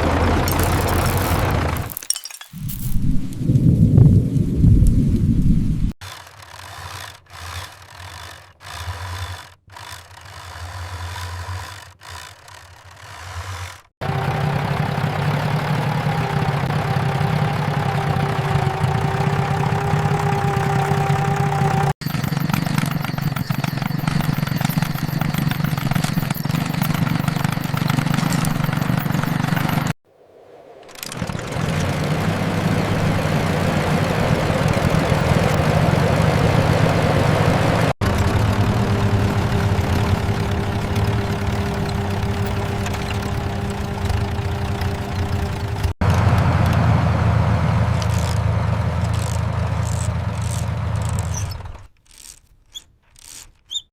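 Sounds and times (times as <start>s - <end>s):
truck engine running: 0.0s - 2.0s, 14.0s - 30.0s, 30.6s - 51.8s
held whine: 14.0s - 51.3s.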